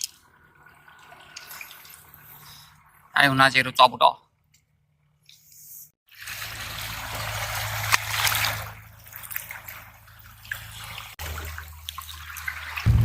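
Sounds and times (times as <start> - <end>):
water splashing among rocks: 6.2 - 12.9.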